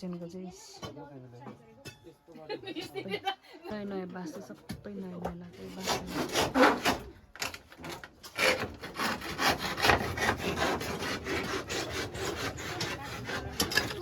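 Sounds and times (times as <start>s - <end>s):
handsaw cutting wood: 5.6s - 7.1s, 7.8s - 14.0s.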